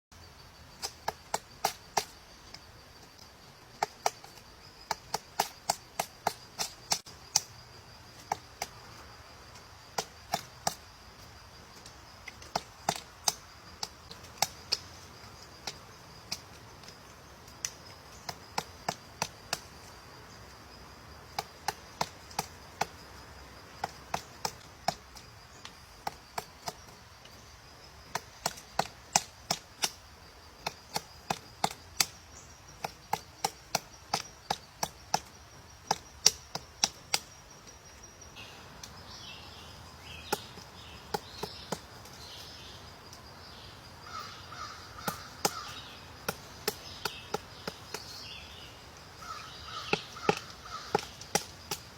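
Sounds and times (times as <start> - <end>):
high insect drone: 0.1 - 51.9
sharp dry clicks: 0.8 - 7.6, 11.8 - 19.7, 28.1 - 30.0, 30.6 - 37.4.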